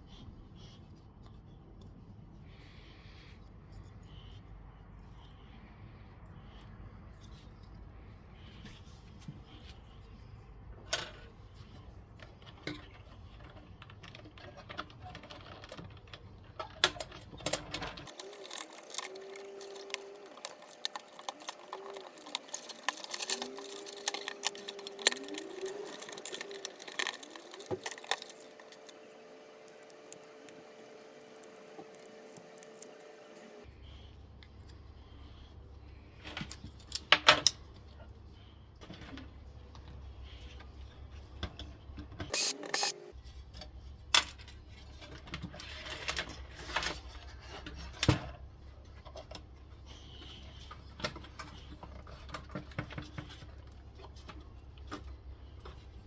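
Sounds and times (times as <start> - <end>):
metal scrap clinking: 18.0 - 33.6, 42.3 - 43.0
small motor whining: 42.3 - 43.1.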